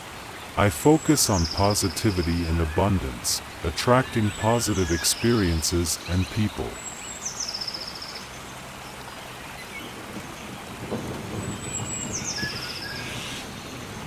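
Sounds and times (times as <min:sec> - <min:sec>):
steady rain: 0:00.0 - 0:14.0
low thunder rumble: 0:10.1 - 0:14.0.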